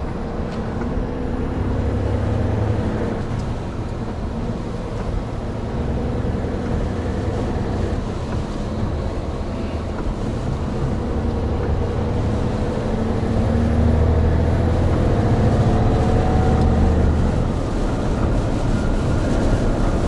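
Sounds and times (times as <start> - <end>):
road noise: 0.0 - 20.0
truck diesel engine drone: 0.0 - 20.0.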